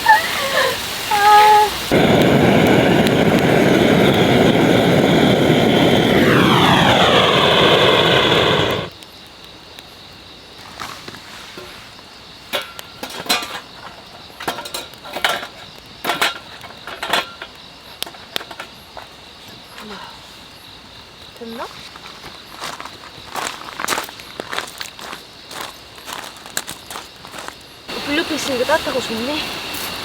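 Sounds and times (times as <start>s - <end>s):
engine drone falling in pitch: 1.9s - 8.9s.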